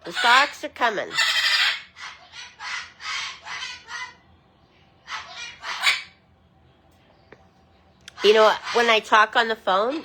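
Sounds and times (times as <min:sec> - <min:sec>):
parrots squawking: 0:00.0 - 0:04.2, 0:05.0 - 0:06.2, 0:08.2 - 0:09.2.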